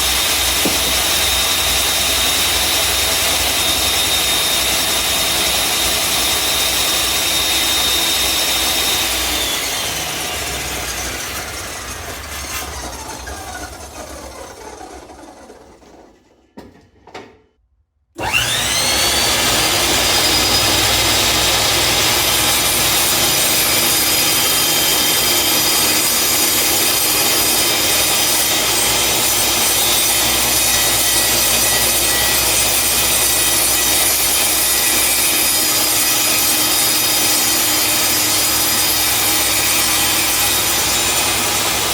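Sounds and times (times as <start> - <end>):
saw motor winding down: 0.0 - 15.8, 18.2 - 41.9
saw spinning up: 0.0 - 16.2, 18.2 - 41.9
table saw running: 0.0 - 16.2, 18.2 - 41.9.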